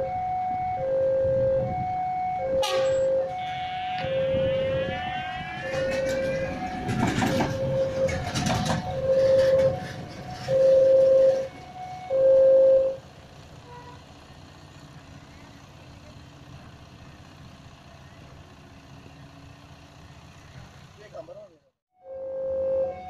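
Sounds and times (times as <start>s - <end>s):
two-tone railway warning signal: 0.6s - 13.0s
train wheel clatter: 5.6s - 11.6s.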